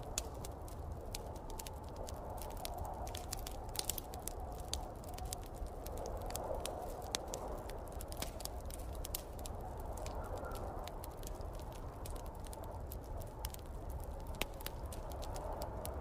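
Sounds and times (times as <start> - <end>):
low rumble of snowstorm: 0.0 - 16.0
wood fire crackling: 0.0 - 16.0.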